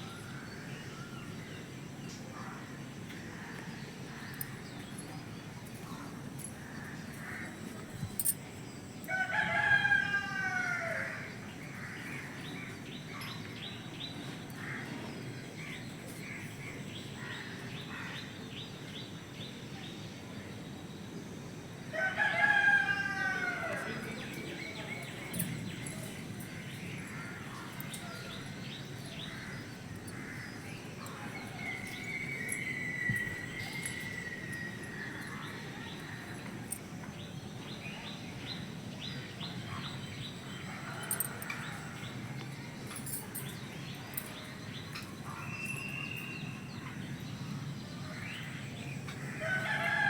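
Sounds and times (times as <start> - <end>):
rooster crowing: 9.1 - 11.3, 21.9 - 24.3, 49.3 - 50.0
faint high chirping: 27.7 - 36.8, 42.8 - 47.6.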